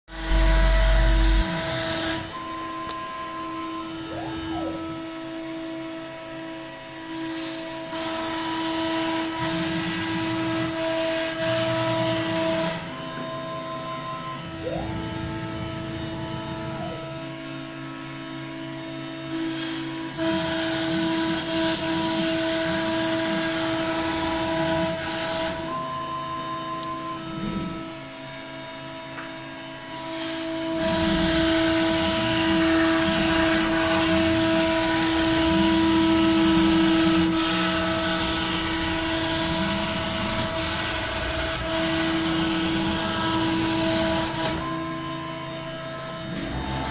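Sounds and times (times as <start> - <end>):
router milling plastic: 30.0 - 45.5.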